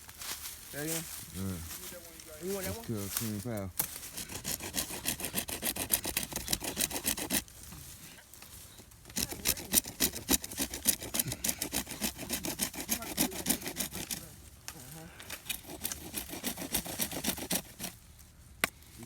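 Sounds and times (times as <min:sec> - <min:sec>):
saw cutting through wood: 0:04.0 - 0:07.4, 0:09.1 - 0:14.4, 0:15.3 - 0:18.0.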